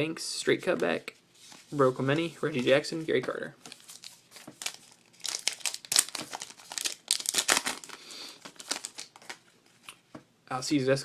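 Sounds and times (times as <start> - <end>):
foil wrapper crinkling: 3.6 - 9.5.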